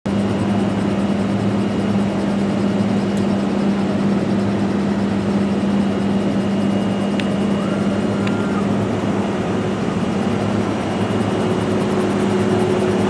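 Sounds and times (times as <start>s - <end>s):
jet engines droning: 0.1s - 13.0s.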